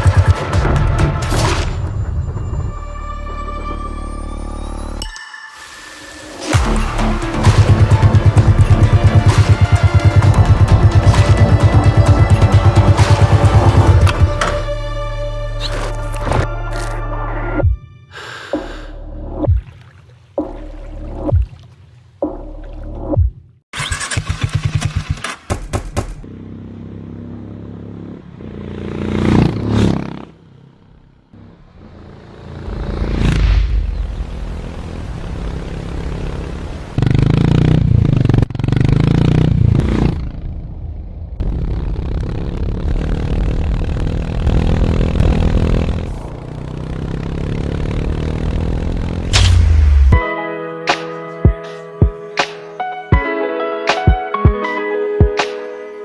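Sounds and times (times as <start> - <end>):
motorcycle engine revving: 6.5 - 14.8, 23.8 - 50.2.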